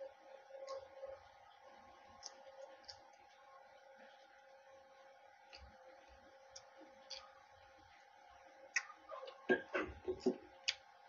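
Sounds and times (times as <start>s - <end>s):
steady low hum: 0.0s - 11.0s
man chewing food: 1.9s - 3.5s, 5.4s - 7.9s, 8.7s - 11.0s.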